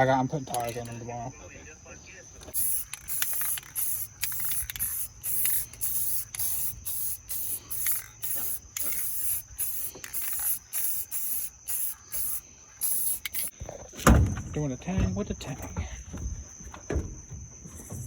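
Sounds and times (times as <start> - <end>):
spray can hissing bursts: 2.5 - 13.5.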